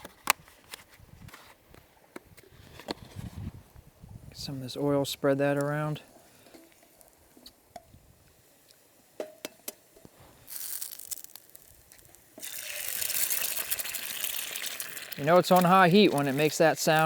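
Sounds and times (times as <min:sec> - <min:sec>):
hot oil sizzling in pan: 0:06.0 - 0:17.0.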